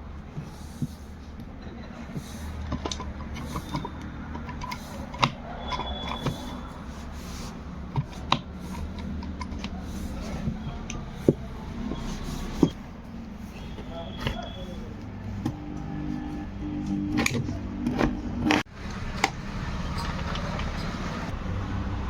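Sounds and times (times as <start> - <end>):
drill parts clicking and knocking: 0.2 - 12.8.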